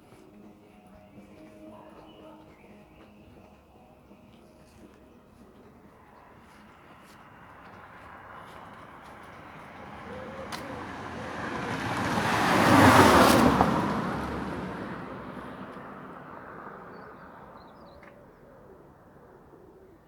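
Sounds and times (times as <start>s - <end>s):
vehicle passing by: 5.9s - 19.2s.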